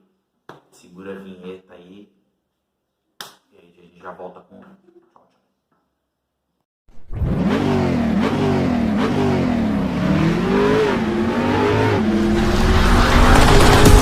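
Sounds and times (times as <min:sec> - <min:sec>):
car engine revving: 0:07.0 - 0:14.0.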